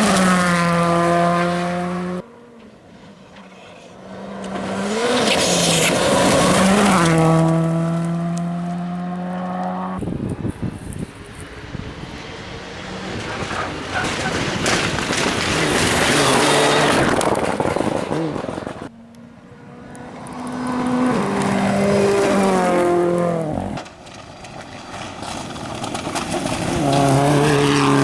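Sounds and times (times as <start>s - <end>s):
rally car engine at high revs: 0.0s - 2.2s, 4.1s - 19.0s, 19.6s - 23.8s, 26.1s - 28.0s
rough noisy rumble: 10.0s - 19.4s.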